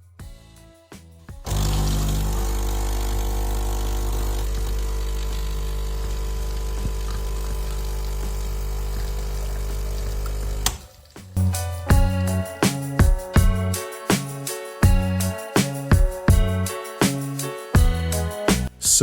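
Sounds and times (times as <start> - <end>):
espresso machine pump humming: 1.5 - 10.7.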